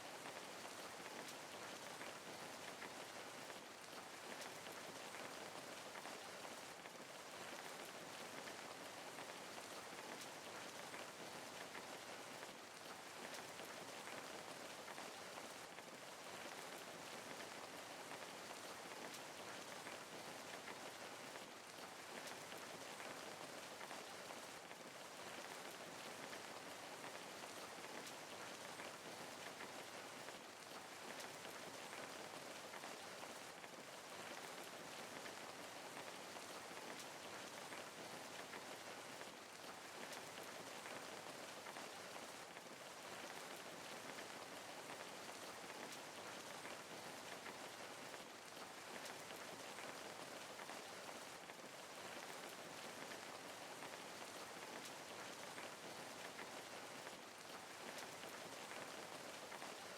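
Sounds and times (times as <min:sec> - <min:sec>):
steady rain pattering: 0:00.0 - 0:59.9.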